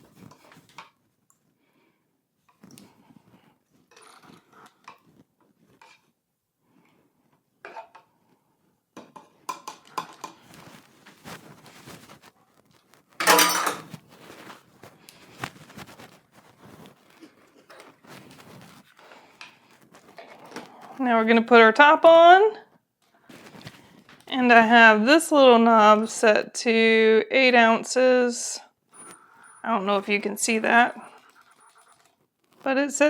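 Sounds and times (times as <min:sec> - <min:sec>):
clinks and scrapes in plastic canister: 0:13.1 - 0:14.6.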